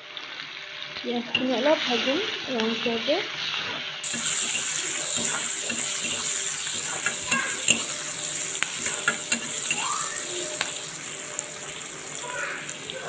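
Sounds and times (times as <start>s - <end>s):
onions sizzling in hot oil: 0.0s - 13.0s
spatula scraping a pan: 4.0s - 12.8s.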